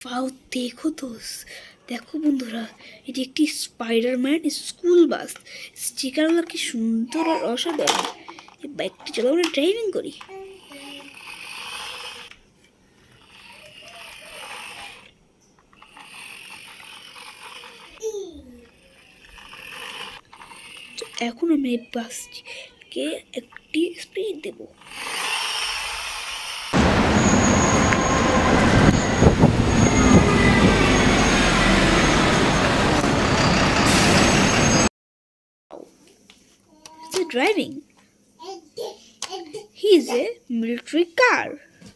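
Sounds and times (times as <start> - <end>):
toy vehicle ratcheting whirr: 6.0 - 12.4, 13.0 - 26.8
bus driving rumble: 26.8 - 34.9.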